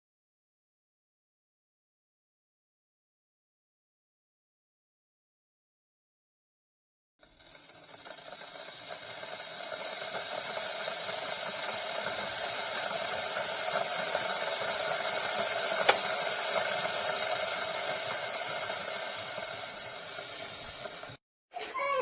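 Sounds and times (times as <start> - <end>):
kettle heating water hiss: 7.2 - 22.0
kettle click: 15.8 - 16.2.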